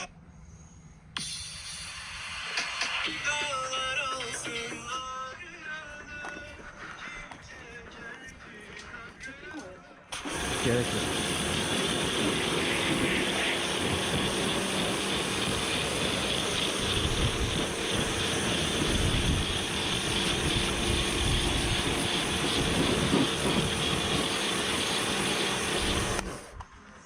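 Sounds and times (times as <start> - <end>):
pressure washer motor droning: 10.1 - 26.6
water jet hissing: 10.2 - 26.6.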